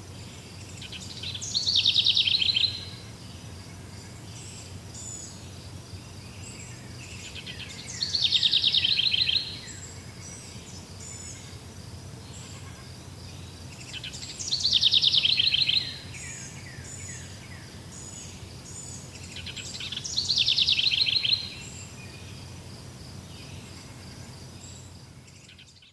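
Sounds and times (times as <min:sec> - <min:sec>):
high chirping of birds and insects: 0:00.0 - 0:25.9.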